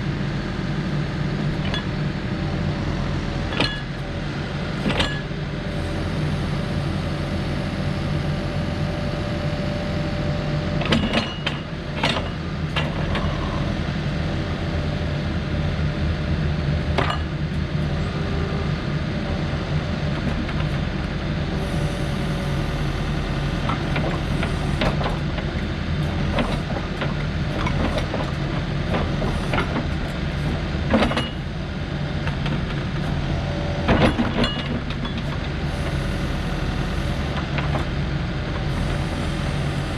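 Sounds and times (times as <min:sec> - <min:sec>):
diesel engine running: 0:00.0 - 0:39.9
metal clanks and knocks: 0:10.8 - 0:13.3, 0:30.9 - 0:31.4, 0:33.9 - 0:35.4.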